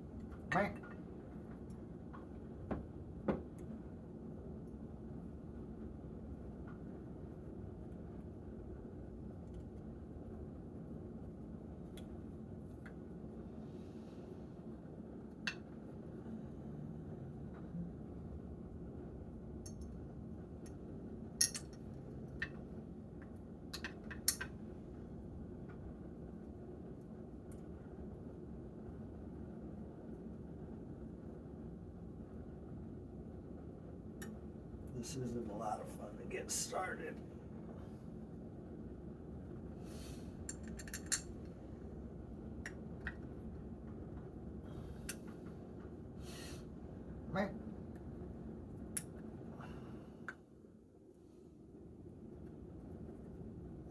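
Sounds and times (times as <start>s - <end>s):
steady low hum: 0.0s - 53.9s
small metal parts clicking: 21.4s - 21.8s, 40.5s - 41.3s.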